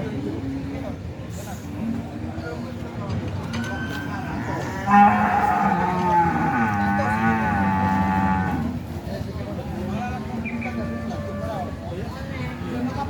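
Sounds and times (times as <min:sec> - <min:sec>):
cow mooing: 0:04.4 - 0:08.8.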